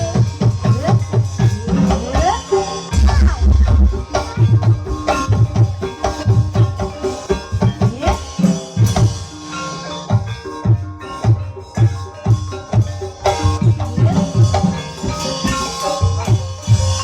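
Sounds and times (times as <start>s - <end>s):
gamelan music: 0.0s - 17.0s
hand drum strokes: 0.0s - 17.0s
ringing struck metal notes: 0.0s - 17.0s
rising swooping notes: 2.9s - 5.4s.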